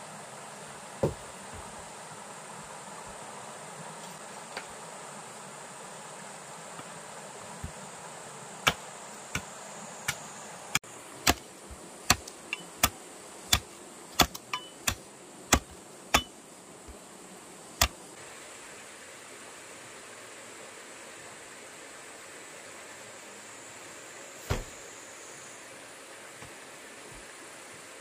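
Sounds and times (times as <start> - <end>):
steady hiss: 0.0 - 28.0
sharp knocks: 1.0 - 1.2.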